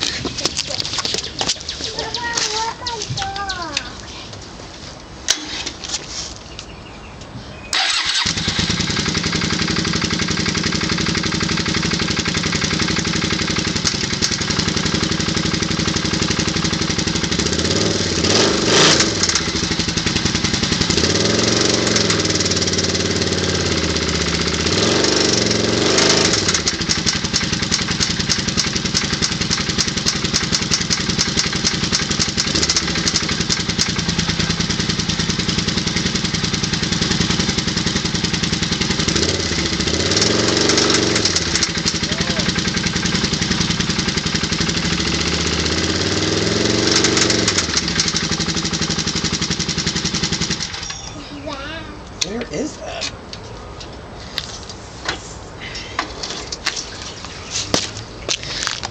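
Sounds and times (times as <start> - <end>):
motorcycle engine knocking: 8.8 - 18.1, 19.2 - 50.8.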